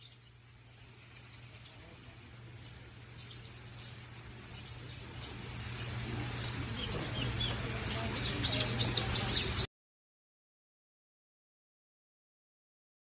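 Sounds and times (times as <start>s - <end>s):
small birds chirping: 0.0s - 9.7s
steady low hum: 0.0s - 9.7s.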